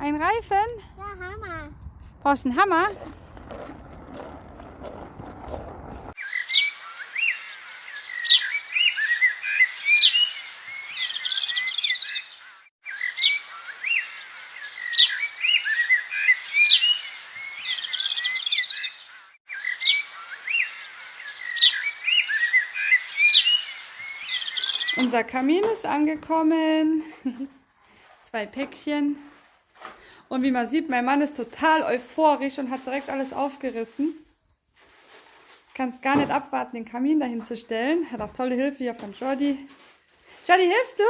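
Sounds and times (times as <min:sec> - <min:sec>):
songbirds chirping and trilling: 0:06.2 - 0:25.2.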